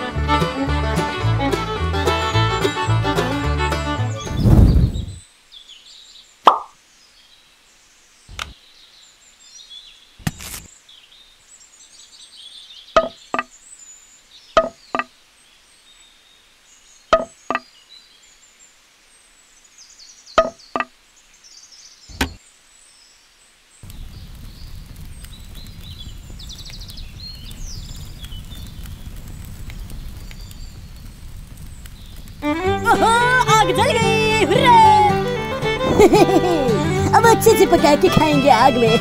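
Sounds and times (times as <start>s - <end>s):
small wood fire crackling: 0.0s - 6.7s, 9.8s - 11.5s, 23.6s - 39.0s
faint high bird chirps: 10.8s - 18.7s
small sticks knocking: 13.0s - 13.5s, 14.6s - 15.1s, 17.1s - 17.6s, 20.4s - 20.9s.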